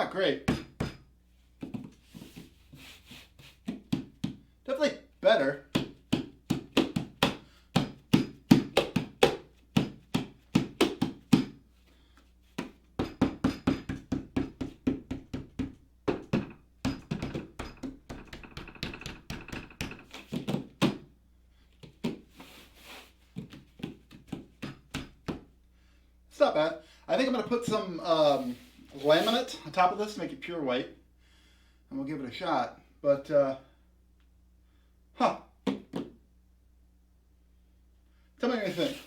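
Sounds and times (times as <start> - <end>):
hand knocking on padded table: 3.7 - 4.4, 5.7 - 11.6, 12.6 - 21.1.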